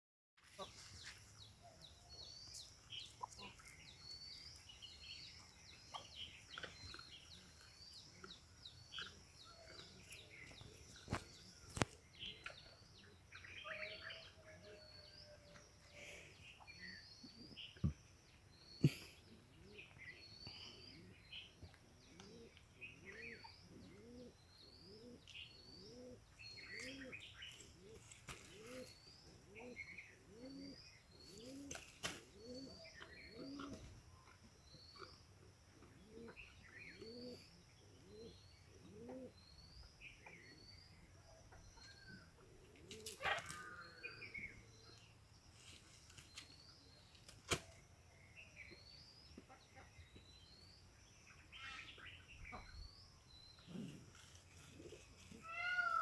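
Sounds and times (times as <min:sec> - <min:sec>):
small birds chirping: 0:00.4 - 0:56.0
bird cooing: 0:22.1 - 0:34.0, 0:35.8 - 0:39.4.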